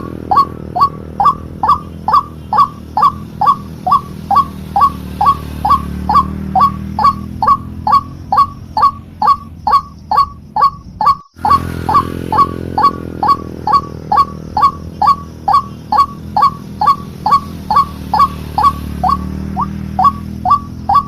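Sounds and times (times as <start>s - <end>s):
waterhen call: 0.0s - 21.0s.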